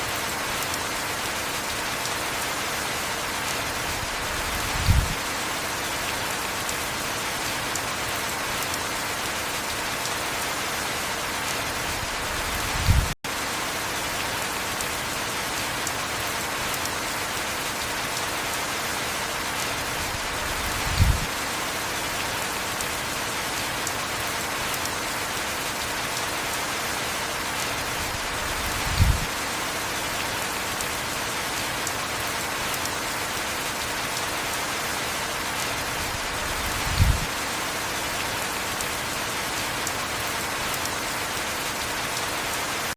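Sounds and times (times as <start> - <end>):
heavy rain: 0.0 - 42.9.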